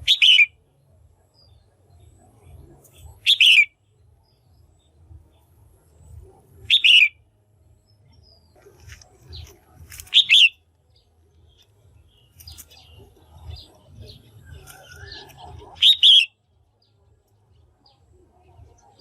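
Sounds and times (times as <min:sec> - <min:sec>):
bird chirping calls: 0:00.0 - 0:00.7, 0:01.3 - 0:19.0.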